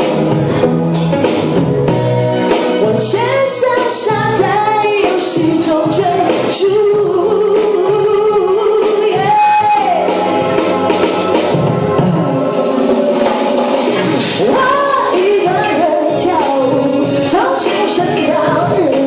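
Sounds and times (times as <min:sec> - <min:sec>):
backing track with steady beat: 0:00.0 - 0:19.0
woman singing a pop song: 0:02.7 - 0:10.4, 0:14.3 - 0:19.0.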